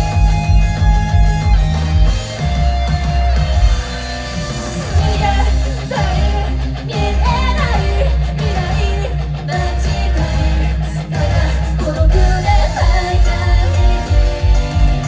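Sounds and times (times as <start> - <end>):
guitar: 0.0 - 15.0
heavy low bass: 0.0 - 15.0
person singing: 4.9 - 15.0.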